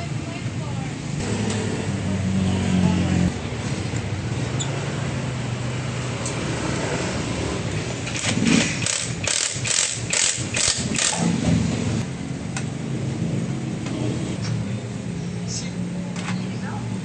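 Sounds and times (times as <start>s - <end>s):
short noisy bursts: 8.2s - 11.4s.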